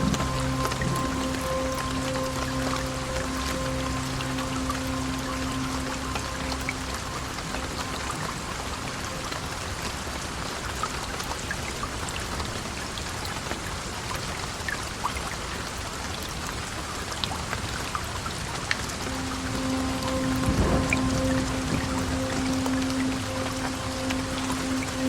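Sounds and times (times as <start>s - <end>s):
heavy rain falling: 0.0s - 14.5s, 18.0s - 25.0s.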